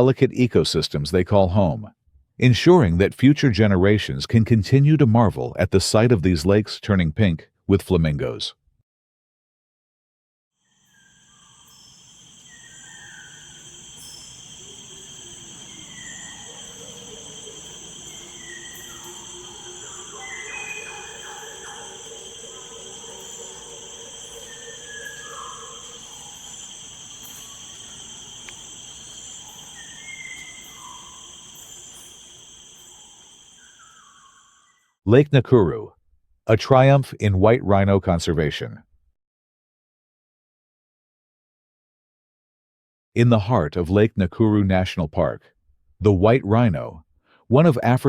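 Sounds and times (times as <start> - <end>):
insects trilling: 10.6 - 34.8
bird chirps: 10.9 - 34.9.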